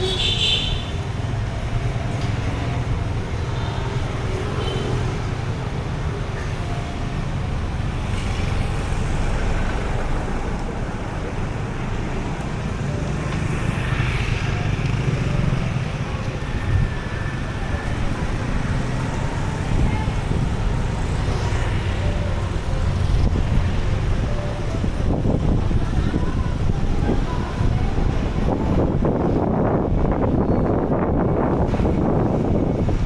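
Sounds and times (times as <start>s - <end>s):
motor vehicles passing: 0.0s - 30.3s.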